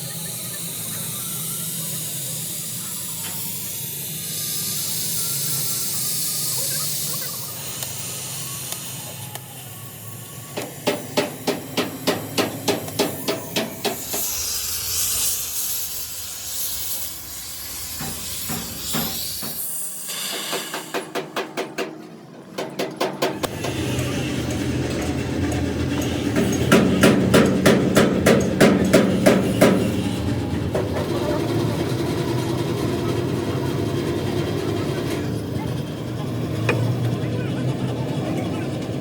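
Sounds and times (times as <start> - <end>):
hissing: 0.0 - 21.1
hammer striking metal: 10.6 - 14.6, 17.8 - 21.9, 22.6 - 31.2.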